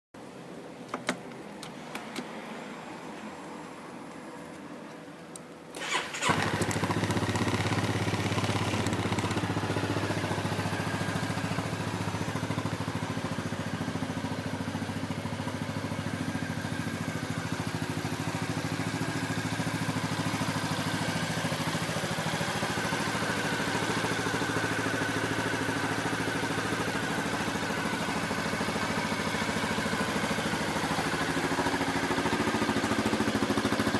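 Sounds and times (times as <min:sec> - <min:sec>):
clicks: 0:00.8 - 0:02.4
scooter engine starting and idling: 0:05.7 - 0:33.9.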